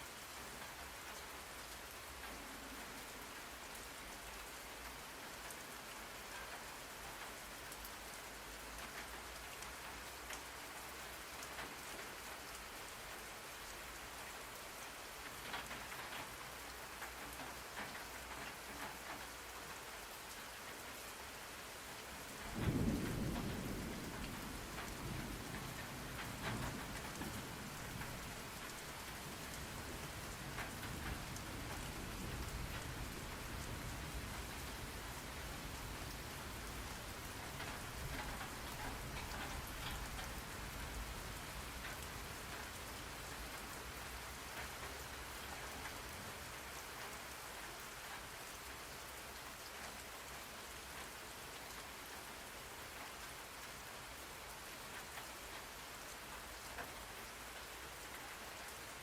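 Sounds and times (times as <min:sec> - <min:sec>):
rain falling on a surface: 0:00.0 - 0:59.0.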